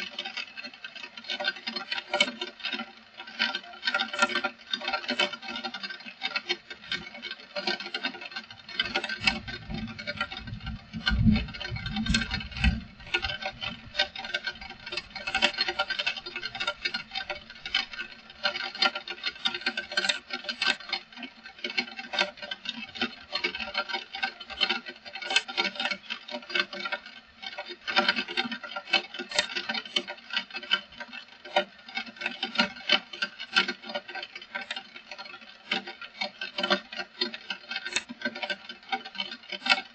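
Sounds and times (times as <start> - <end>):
low rumble: 9.2 - 14.0
heavy rain pattering: 9.2 - 15.3.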